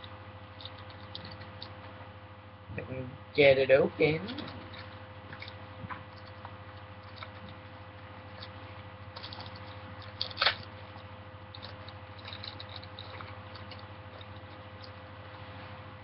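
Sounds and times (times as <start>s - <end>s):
low electrical hum: 0.0s - 16.0s
foil wrapper crinkling and tearing: 4.4s - 15.0s.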